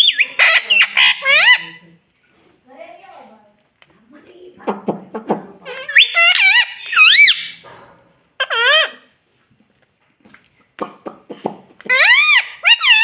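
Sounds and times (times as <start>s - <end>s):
parrot squeaky calls: 0.0s - 1.9s, 5.6s - 7.6s, 8.4s - 9.1s, 11.8s - 13.0s.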